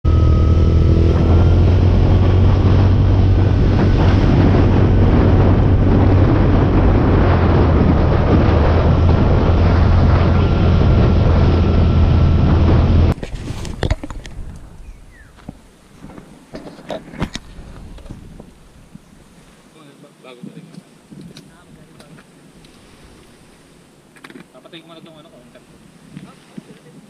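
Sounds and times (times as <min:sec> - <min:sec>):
motorcycle engine running: 0:00.0 - 0:13.2
wind noise on microphone: 0:00.0 - 0:19.6, 0:20.4 - 0:24.5, 0:25.6 - 0:27.0.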